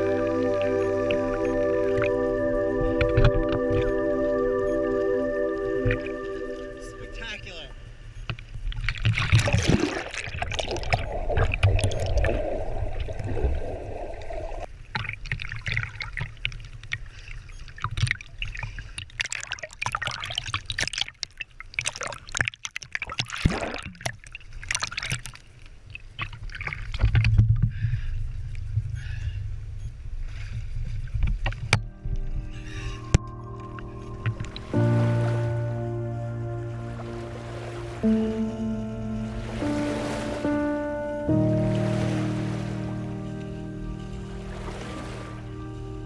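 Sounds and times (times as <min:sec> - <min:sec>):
water sloshing and splashing: 0:08.3 - 0:27.7, 0:31.2 - 0:46.0
steady low rumble: 0:28.2 - 0:46.0.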